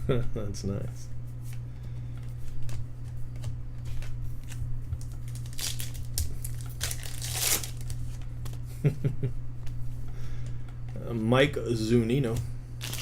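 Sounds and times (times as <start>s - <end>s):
steady low hum: 0.0s - 13.0s
cards being flipped through: 2.2s - 8.6s, 12.3s - 13.0s.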